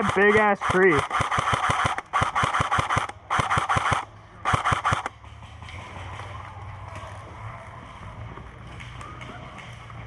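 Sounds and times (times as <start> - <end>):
airsoft rifle bursts: 0.0 - 5.1.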